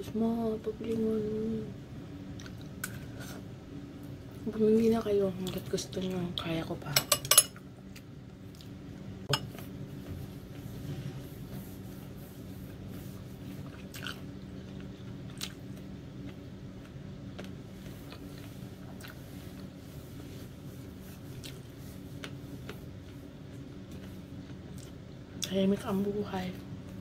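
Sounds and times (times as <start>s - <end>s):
steady low hum: 0.0s - 27.0s
person chewing noodles: 2.3s - 3.0s, 7.8s - 8.8s, 13.5s - 20.3s, 21.1s - 25.5s.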